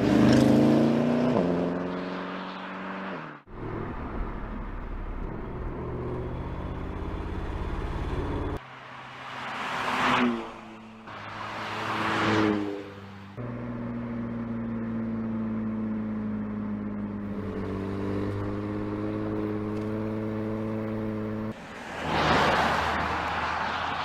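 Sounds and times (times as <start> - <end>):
car engine droning: 0.0 - 24.0
car passing by: 8.3 - 13.4, 21.5 - 24.0.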